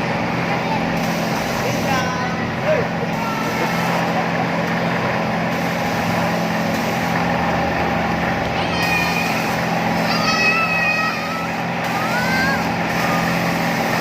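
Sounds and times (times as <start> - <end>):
crowd noise: 0.0 - 14.0
mechanical hum of a ride: 0.0 - 14.0
high voice calling out: 8.5 - 13.6.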